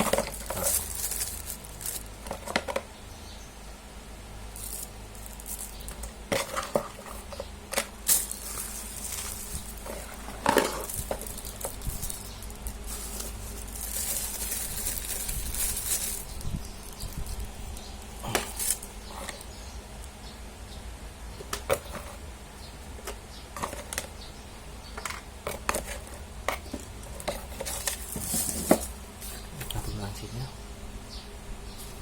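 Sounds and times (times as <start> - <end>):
rustling: 0.0 - 2.8, 4.5 - 19.7, 25.5 - 30.0
hard objects clicking and knocking: 0.0 - 2.9, 4.6 - 19.5.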